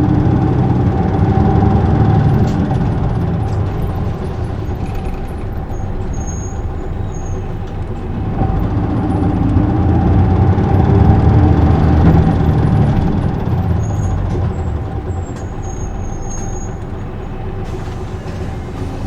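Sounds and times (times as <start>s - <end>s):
bus diesel engine running: 0.0s - 19.0s.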